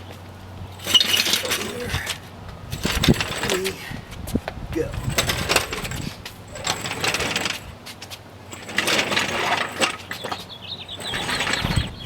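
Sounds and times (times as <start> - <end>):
high squeak: 0.8 - 1.8
metal clunks and rattles: 0.8 - 3.8, 4.8 - 12.0.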